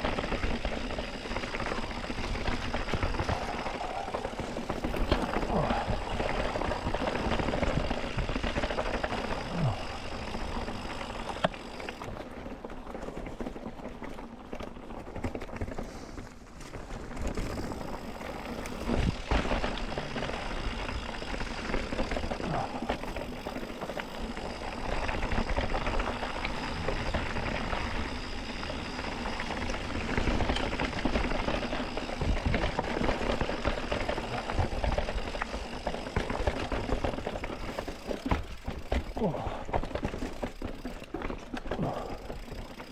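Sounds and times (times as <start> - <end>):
bike knocking and rattling: 0.0 - 42.9
bike tyres on rocky trail: 0.0 - 42.9.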